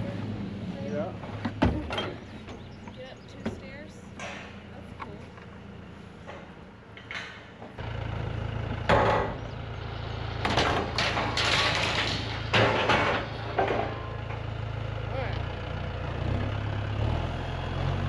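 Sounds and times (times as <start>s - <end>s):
engine humming: 0.0s - 18.0s
loud knocks and clattering: 8.9s - 9.4s, 10.4s - 14.5s.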